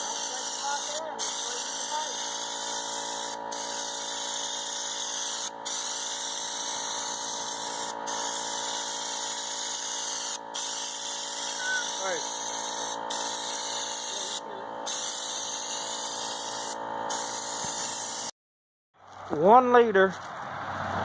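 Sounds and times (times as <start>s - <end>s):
spray gun air hissing: 0.0s - 18.3s
steady whine: 10.3s - 18.3s.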